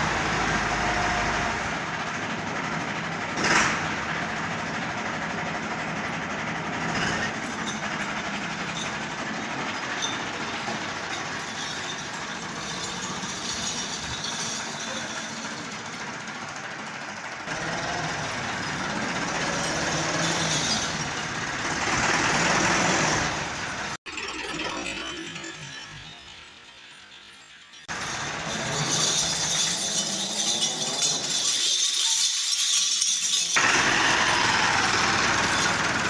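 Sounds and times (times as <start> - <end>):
vehicle engine humming: 0.0 - 24.0, 33.5 - 36.0.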